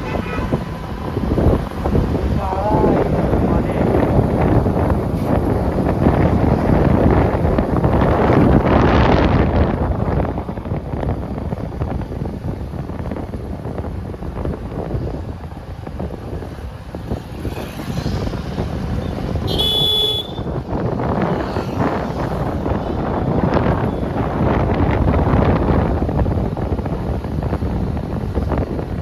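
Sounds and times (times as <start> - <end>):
vehicle horn: 0.0 - 0.7, 19.4 - 20.6
road and traffic noise: 0.0 - 29.0
wind rushing over microphone: 0.0 - 29.0.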